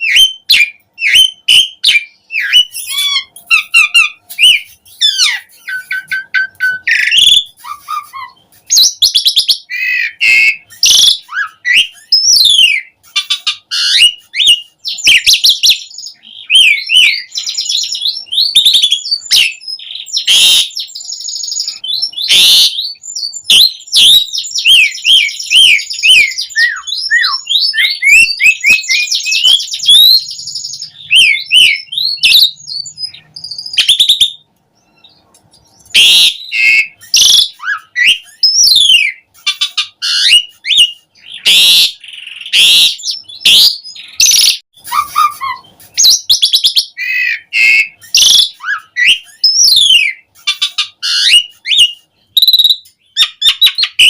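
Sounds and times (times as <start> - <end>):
starling singing: 0.0 - 54.0.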